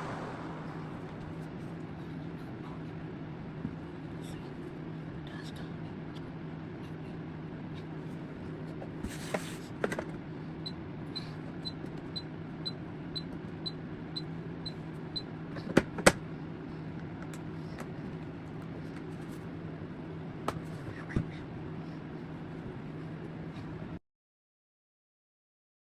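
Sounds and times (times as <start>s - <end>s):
fan motor humming: 0.0s - 4.4s.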